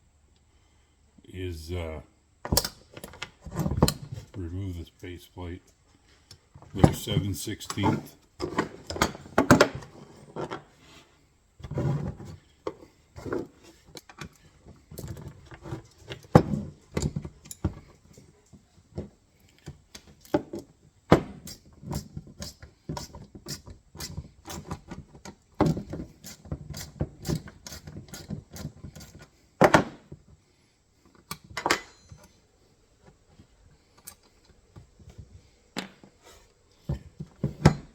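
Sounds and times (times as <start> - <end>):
tools and parts handled: 31.1 - 32.4
wrench clinking on metal bolts: 31.3 - 32.4.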